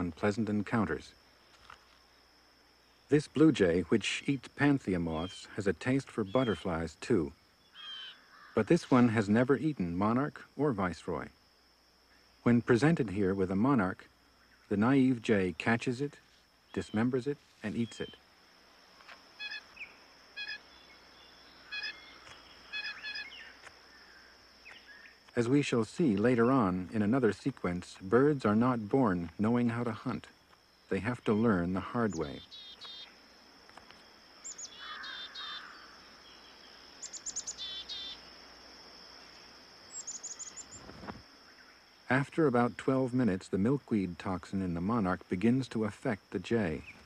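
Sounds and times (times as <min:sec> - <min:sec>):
faint high-pitched whine: 0:00.0 - 0:47.0
songbird chirping: 0:00.0 - 0:47.0
short bird calls: 0:07.6 - 0:09.0, 0:19.4 - 0:25.2, 0:30.8 - 0:33.2, 0:34.4 - 0:38.2, 0:39.2 - 0:41.9.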